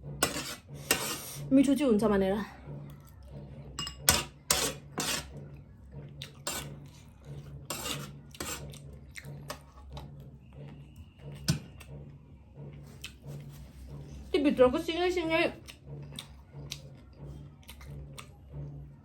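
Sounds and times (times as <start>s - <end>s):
dishes and utensils clattering: 0.0s - 1.5s, 2.7s - 10.0s.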